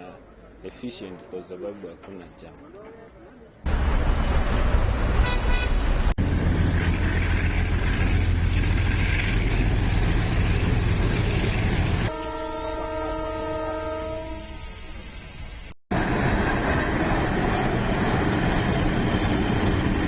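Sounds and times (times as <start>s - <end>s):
vehicle horn: 5.2s - 5.8s, 12.1s - 14.8s.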